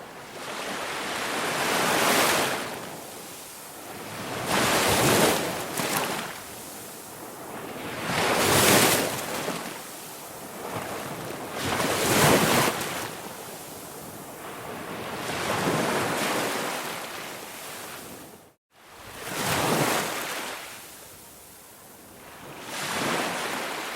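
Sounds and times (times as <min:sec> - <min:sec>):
ocean waves breaking: 0:00.2 - 0:18.4, 0:19.0 - 0:20.8.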